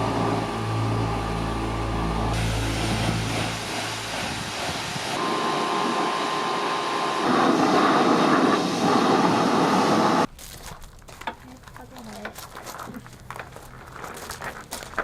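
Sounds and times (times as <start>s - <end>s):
faint steady whine: 0.0s - 8.1s
pressure washer spraying water: 0.0s - 10.2s.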